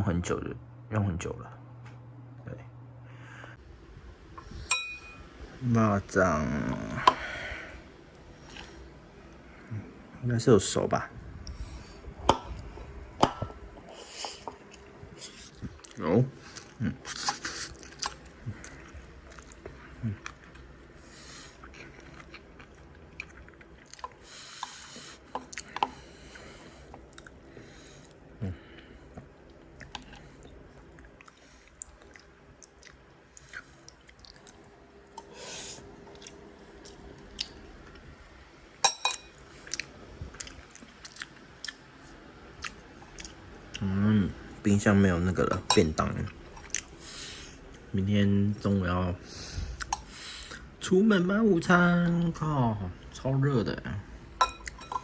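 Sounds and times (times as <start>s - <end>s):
food crunching: 6.7s - 9.7s, 14.3s - 35.3s, 39.1s - 43.9s
person chewing food: 6.8s - 9.9s, 12.3s - 38.0s, 39.6s - 43.9s, 45.6s - 47.9s, 49.3s - 50.8s, 54.5s - 55.0s.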